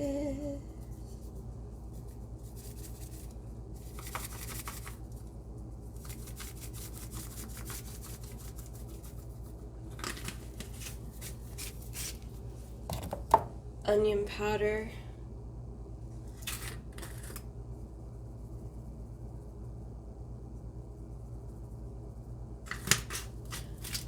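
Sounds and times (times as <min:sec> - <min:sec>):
steady low hum: 0:00.0 - 0:24.0
seasoning shaker rattling: 0:00.8 - 0:12.2.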